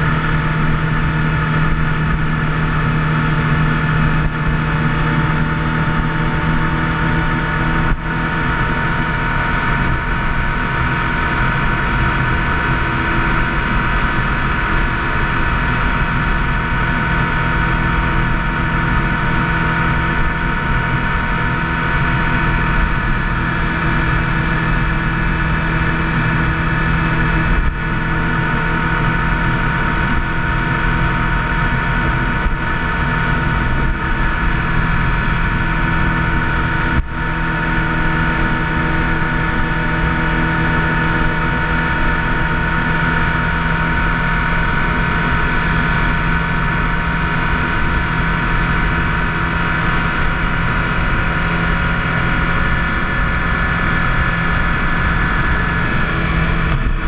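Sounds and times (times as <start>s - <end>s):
motorcycle engine cruising: 0.0s - 57.0s
wind and road noise: 0.0s - 57.0s.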